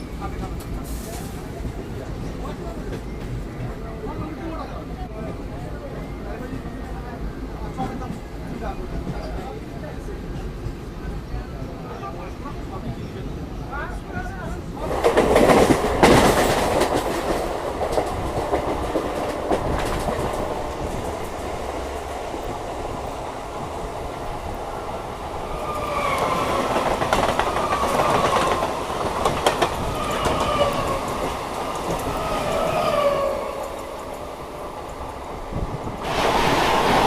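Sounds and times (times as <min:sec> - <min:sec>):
train wheels clattering: 0:14.8 - 0:24.6, 0:25.4 - 0:37.0.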